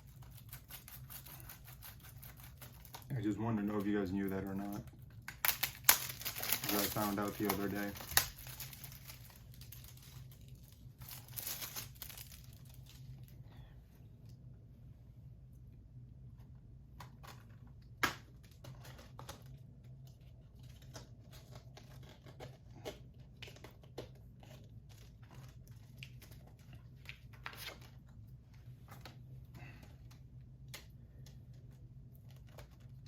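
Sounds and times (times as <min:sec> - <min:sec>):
plastic wrap tearing and crinkling: 0:00.0 - 0:13.4, 0:17.0 - 0:28.2, 0:32.1 - 0:33.0
low steady hum: 0:00.0 - 0:33.0.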